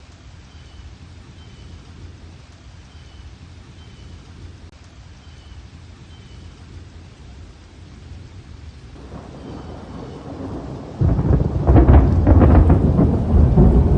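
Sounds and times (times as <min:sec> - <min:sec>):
steady rain: 0:00.0 - 0:13.9
low thunder rumble: 0:09.0 - 0:13.9.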